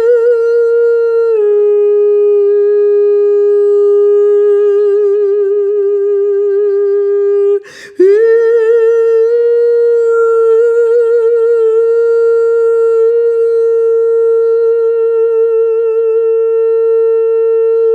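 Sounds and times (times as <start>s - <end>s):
person humming long tone: 0.0s - 17.9s
quick breath: 7.6s - 8.0s.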